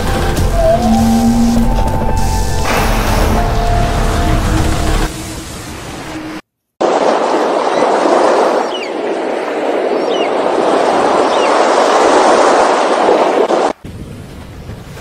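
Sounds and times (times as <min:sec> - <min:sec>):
loud steady rushing noise: 0:00.0 - 0:07.3.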